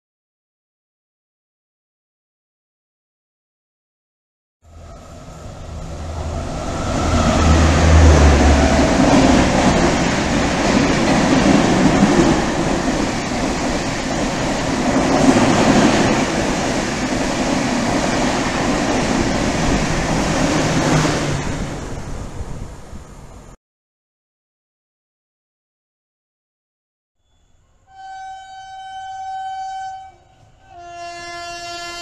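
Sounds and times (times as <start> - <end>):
deep hum of locomotive: 4.6 - 23.6, 27.9 - 32.0
train passing at high speed: 4.6 - 23.6.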